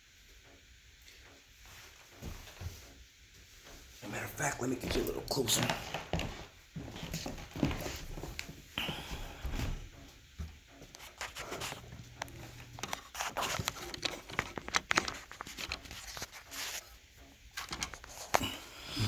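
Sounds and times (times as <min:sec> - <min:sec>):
wood fire crackling and popping: 0:09.8 - 0:19.0.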